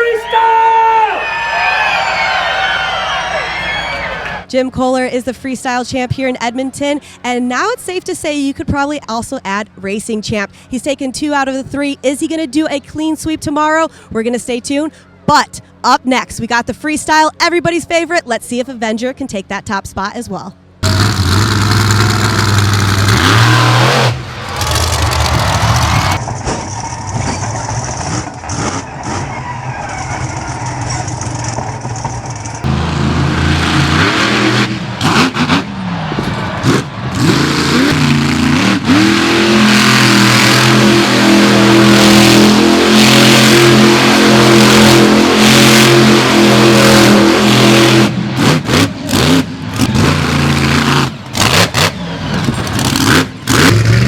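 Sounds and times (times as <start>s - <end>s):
monster truck engine revving: 20.8s - 54.0s.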